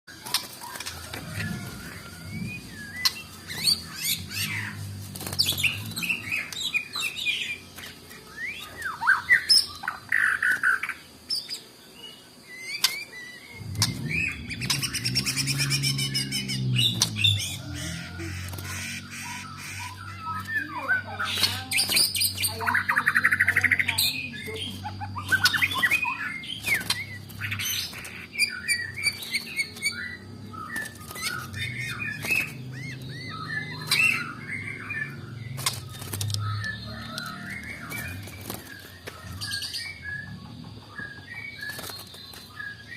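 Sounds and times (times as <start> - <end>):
songbird singing: 0.0 - 42.9
low hum: 0.8 - 6.8, 13.4 - 41.2.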